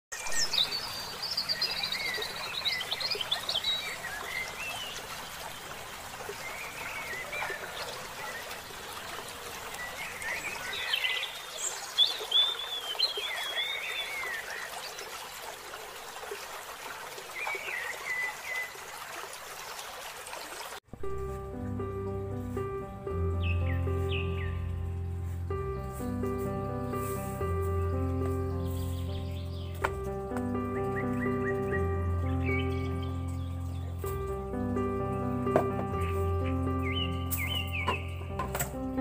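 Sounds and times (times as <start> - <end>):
birds chirping and calling: 0.2 - 5.6, 6.3 - 14.9, 23.2 - 24.9, 25.6 - 38.8
steady outdoor hiss: 0.2 - 39.0.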